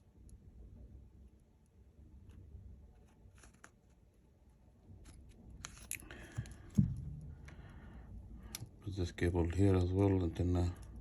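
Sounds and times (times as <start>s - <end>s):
loud knock: 6.8s - 7.4s.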